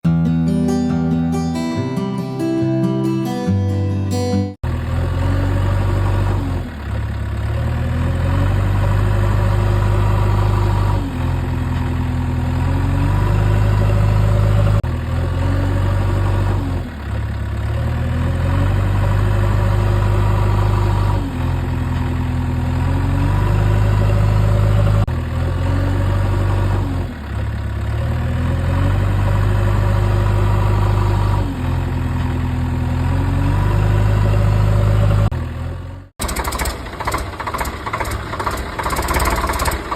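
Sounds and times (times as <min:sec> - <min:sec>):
engine running loop: 0:36.2 - 0:39.9.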